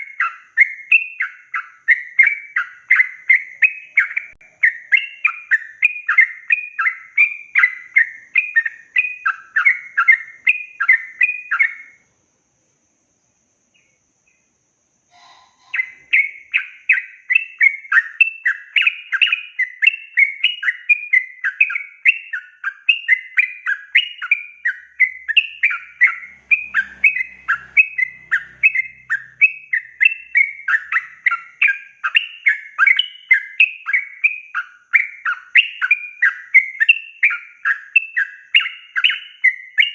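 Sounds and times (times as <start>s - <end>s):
bulbul singing chattering notes: 15.1s - 39.9s.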